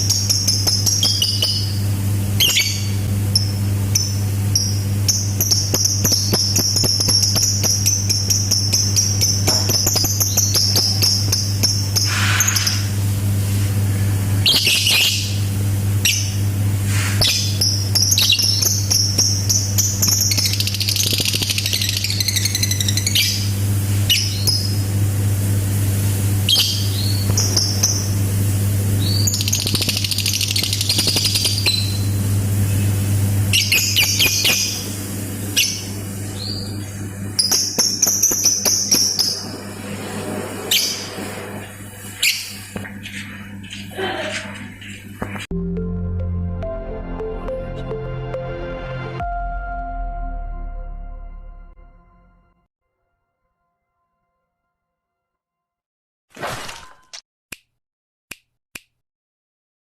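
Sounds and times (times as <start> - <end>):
low hum: 1.0 - 52.7
lovebird chattering and trilling: 17.2 - 24.7, 29.0 - 32.1, 33.5 - 34.8.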